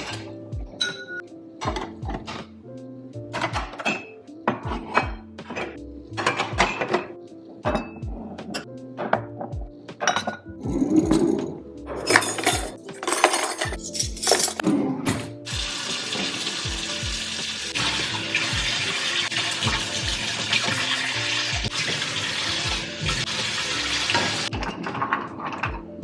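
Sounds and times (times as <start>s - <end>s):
dishes clinking: 0.0s - 1.9s, 3.4s - 9.2s, 10.0s - 11.0s, 12.0s - 15.3s
background music with beat: 0.0s - 26.0s
faucet running into sink: 15.5s - 24.5s.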